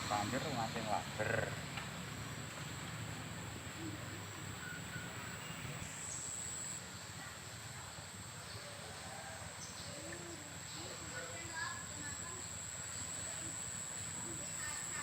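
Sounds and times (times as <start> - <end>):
faint bird chirps: 3.7 - 6.8.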